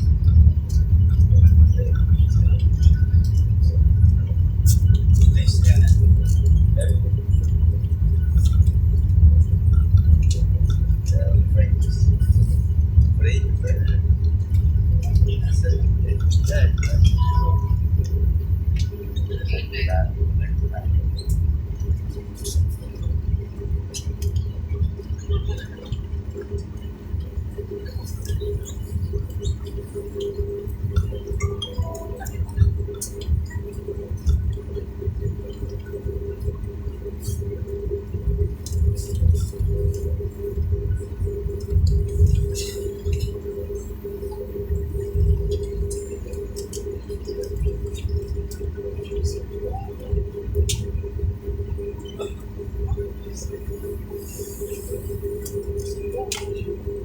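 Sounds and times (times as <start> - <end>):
airliner cabin rumble: 0.0 - 57.0
mid-pitched tone: 17.1 - 18.1, 31.4 - 32.9
small clicks and taps: 50.5 - 51.0
light clicks and taps: 55.4 - 56.8.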